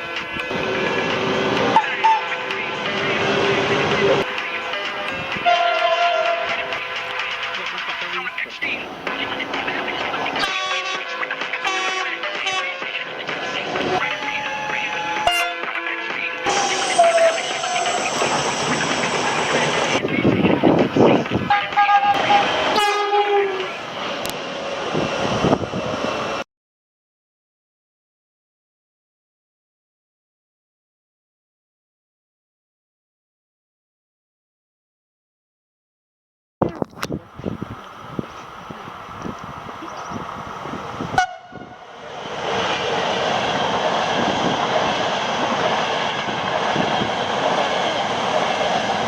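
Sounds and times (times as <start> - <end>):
rumble of passing train: 0.0 - 26.4, 36.9 - 49.0
train horn: 1.7 - 4.2, 5.1 - 6.8, 10.4 - 13.0, 13.8 - 15.7, 16.5 - 17.9, 21.5 - 23.8, 41.1 - 41.9.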